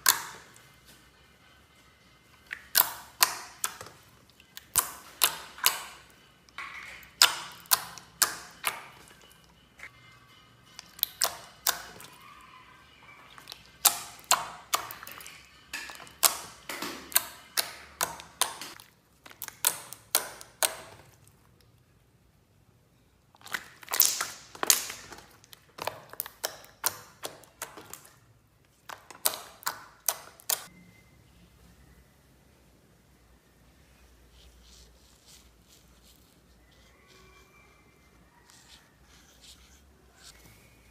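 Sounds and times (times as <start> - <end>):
slime popping and clicking: 2.5 - 9.1, 10.8 - 12.1, 15.8 - 21.1, 23.4 - 28.1, 28.8 - 30.7.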